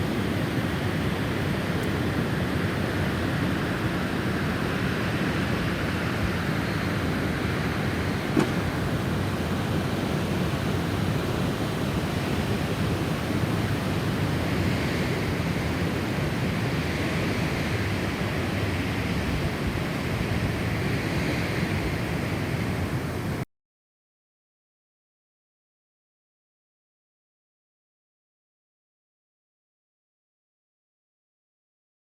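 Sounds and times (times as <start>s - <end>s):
snowstorm wind blowing: 0.0s - 23.4s.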